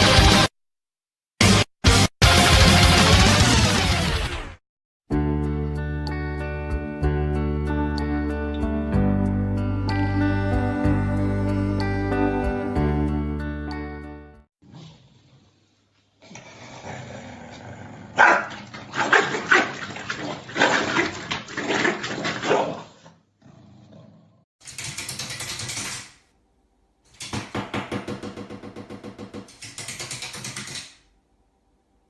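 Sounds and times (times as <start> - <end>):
dog barking and growling: 16.2 - 24.4.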